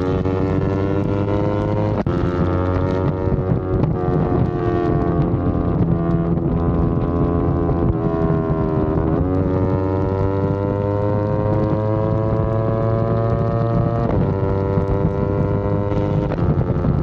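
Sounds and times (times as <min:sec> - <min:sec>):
gear changes: 0:00.0 - 0:17.0
motorcycle engine accelerating: 0:00.0 - 0:17.0
wind noise on microphone: 0:00.0 - 0:17.0.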